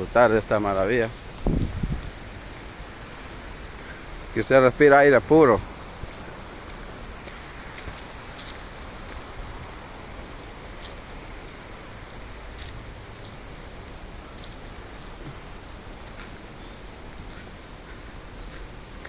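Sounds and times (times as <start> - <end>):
wind rumble on microphone: 0.0 - 4.4
footsteps crunching on dry ground: 0.0 - 19.0
outdoor hiss: 0.0 - 19.0.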